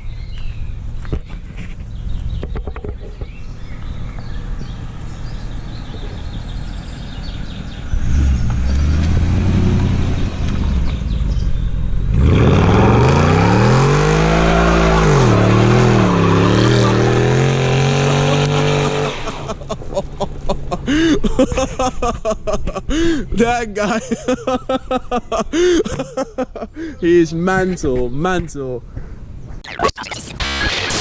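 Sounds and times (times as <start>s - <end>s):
small motorbike engine revving: 12.1s - 19.6s.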